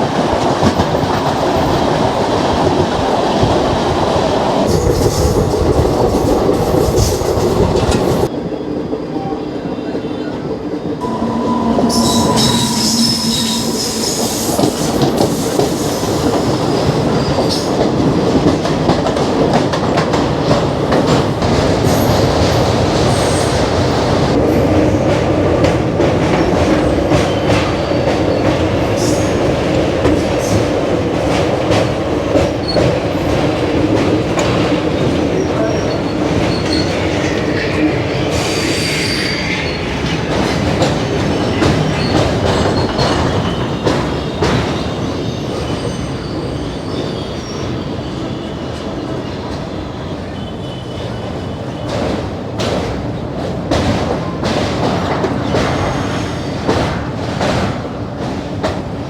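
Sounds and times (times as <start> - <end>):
train wheels rumbling on rail: 0.0 - 59.0
high-pitched wheel squeals: 11.0 - 15.6, 38.3 - 40.1.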